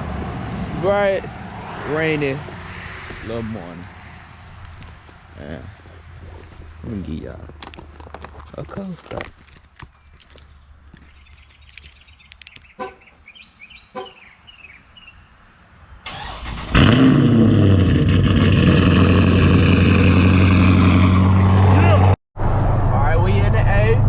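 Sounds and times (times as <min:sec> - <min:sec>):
car engine cranking and starting: 0:16.1 - 0:20.8.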